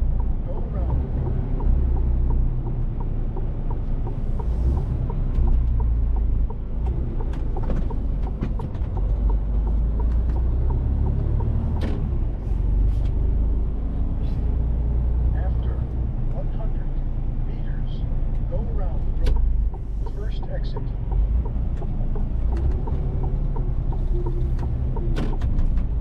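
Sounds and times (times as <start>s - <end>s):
light regular ticking: 0.0s - 12.3s, 18.2s - 26.0s
sharp clicks and knocks: 0.0s - 12.3s, 19.1s - 26.0s
truck diesel engine rumbling: 0.0s - 26.0s.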